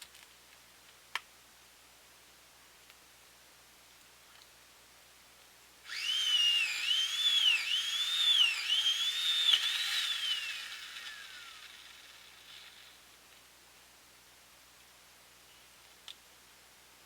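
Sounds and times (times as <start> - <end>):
high swooping whistle: 5.9 - 11.7.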